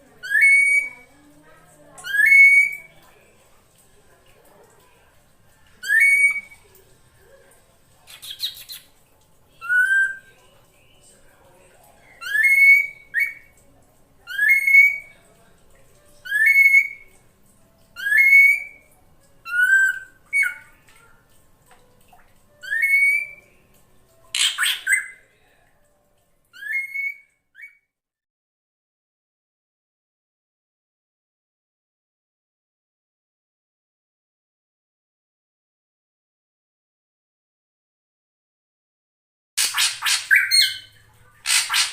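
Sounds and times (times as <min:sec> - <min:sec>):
drongo whistled calls: 0:00.2 - 0:01.0, 0:02.0 - 0:02.9, 0:05.8 - 0:06.6, 0:08.1 - 0:08.9, 0:09.6 - 0:10.3, 0:12.2 - 0:13.5, 0:14.3 - 0:15.1, 0:16.2 - 0:17.1, 0:18.0 - 0:18.9, 0:22.6 - 0:23.4, 0:26.6 - 0:27.8, 0:39.6 - 0:41.9
harsh rasping bird chatter: 0:08.0 - 0:09.0, 0:24.4 - 0:25.1, 0:39.6 - 0:41.9
rising whistled bird call: 0:22.6 - 0:23.4.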